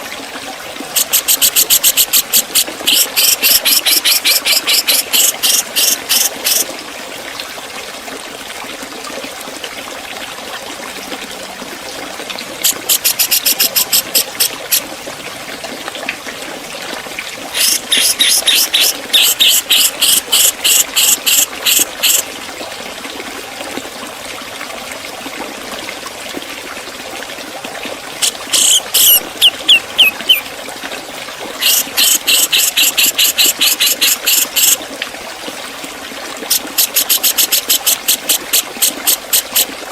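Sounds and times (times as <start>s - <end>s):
bird singing rapid sharp notes: 28.5s - 30.4s.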